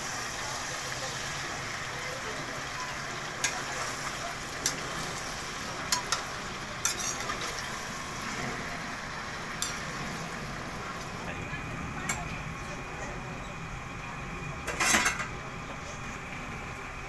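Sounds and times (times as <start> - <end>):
fish frying in a pan: 0.0 - 13.9.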